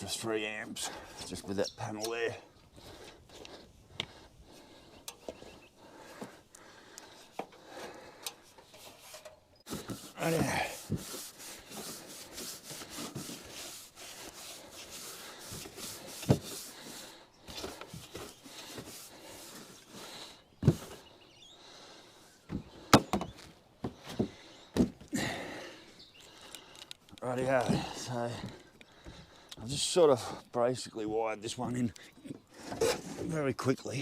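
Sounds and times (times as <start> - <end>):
scraping and rustling: 8.4 - 21.0.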